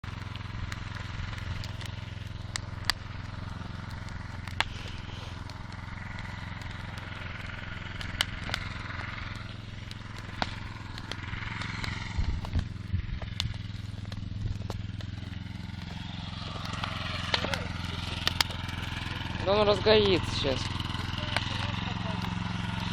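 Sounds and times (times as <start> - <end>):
bonfire crackling and popping: 0.0 - 22.9
low hum: 0.0 - 22.9.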